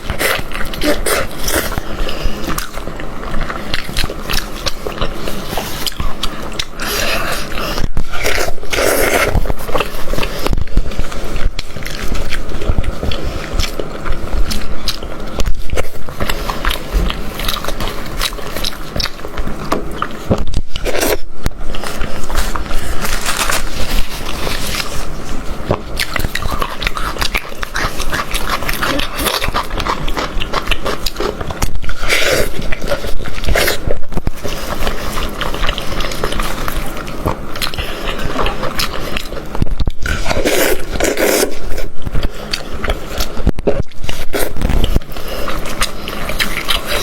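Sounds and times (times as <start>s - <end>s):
person chewing loudly: 0.0s - 47.0s.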